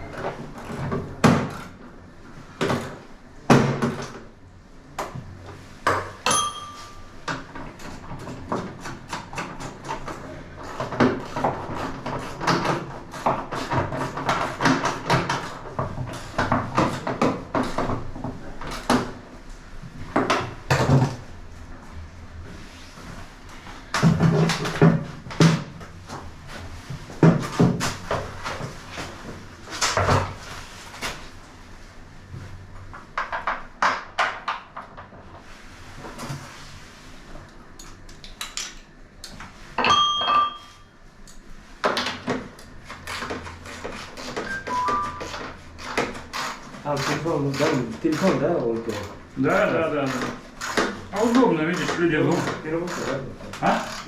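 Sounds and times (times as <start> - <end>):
knocks and clatter of parts: 5.0 - 19.2, 19.9 - 21.3, 23.7 - 26.2, 26.8 - 31.2, 32.8 - 35.3
short electronic beep: 44.5 - 45.3.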